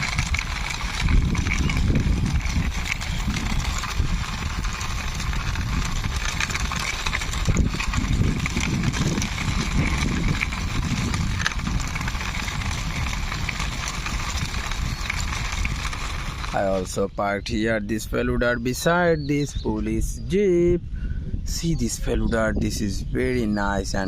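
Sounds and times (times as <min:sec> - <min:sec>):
small clicks: 0:00.0 - 0:16.6
toy wheels rolling and scraping: 0:00.0 - 0:20.1, 0:21.5 - 0:24.0.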